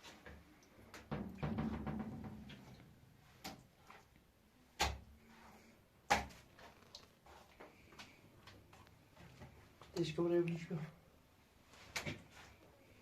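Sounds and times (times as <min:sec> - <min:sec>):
rustling and clattering: 0:01.0 - 0:04.2.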